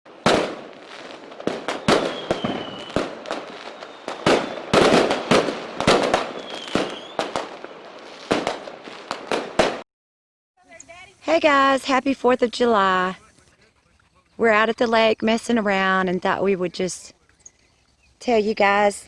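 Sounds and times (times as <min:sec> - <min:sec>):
fireworks bangs and crackling: 0:00.1 - 0:09.8
firework whistles: 0:00.2 - 0:09.8.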